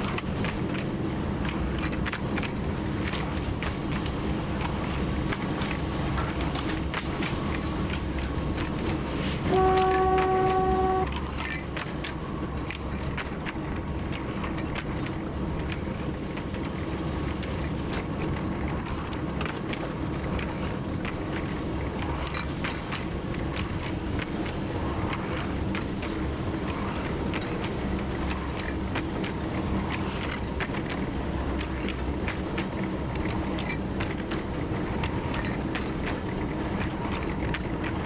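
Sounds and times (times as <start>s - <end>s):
diesel locomotive engine droning: 0.0s - 38.0s
wheels clicking over rail joints: 0.0s - 38.0s
locomotive horn blast: 9.4s - 11.2s.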